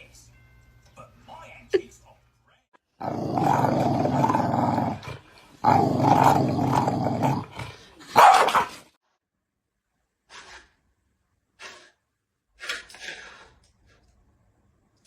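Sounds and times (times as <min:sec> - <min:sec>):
dog growling: 0:03.0 - 0:08.1
dog barking: 0:08.1 - 0:08.8.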